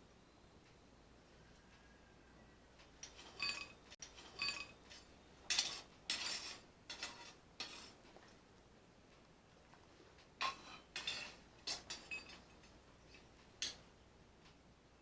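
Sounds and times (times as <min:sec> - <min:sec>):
metal tools clinking: 0:03.0 - 0:08.0, 0:10.4 - 0:13.8.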